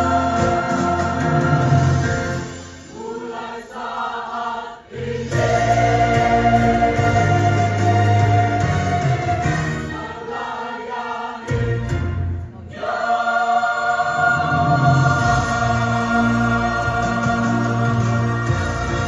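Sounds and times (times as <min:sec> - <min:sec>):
choir singing held chords: 0:00.0 - 0:19.0.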